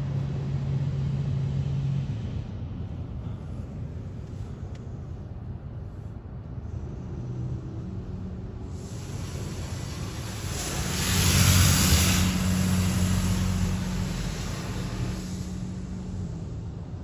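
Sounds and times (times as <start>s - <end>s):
car wash humming: 7.9s - 17.0s
water spraying hiss: 8.7s - 16.5s.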